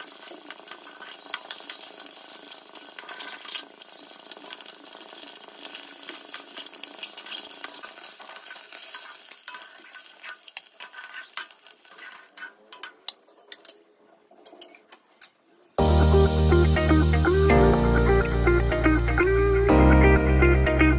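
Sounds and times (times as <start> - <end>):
eggs sizzling in hot oil: 0.0 - 13.7
steel ladle scraping and clinking: 8.8 - 13.7.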